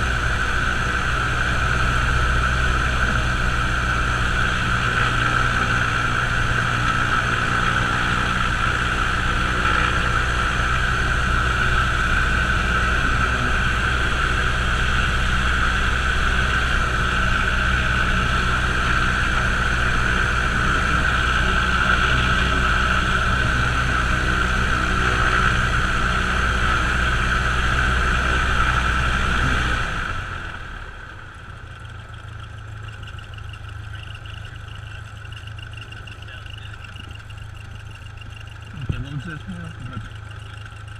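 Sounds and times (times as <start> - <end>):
aircraft piston engine running: 0.0 - 40.9.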